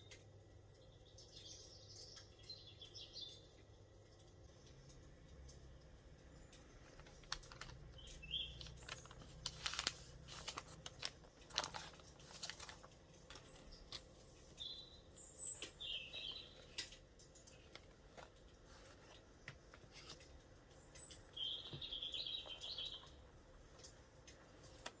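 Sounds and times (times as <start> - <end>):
light clicks and taps: 0.0 - 14.7, 15.5 - 25.0.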